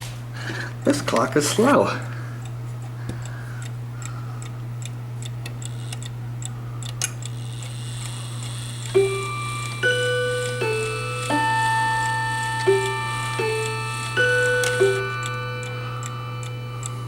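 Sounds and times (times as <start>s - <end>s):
clock chiming: 7.6s - 17.0s
low hum: 8.9s - 17.0s
clock ticking: 9.0s - 17.0s.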